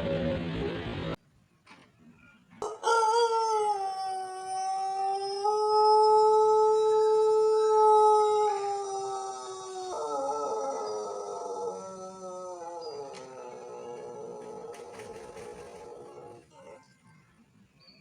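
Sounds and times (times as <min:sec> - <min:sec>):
rooster crowing long crow: 0:02.6 - 0:14.8.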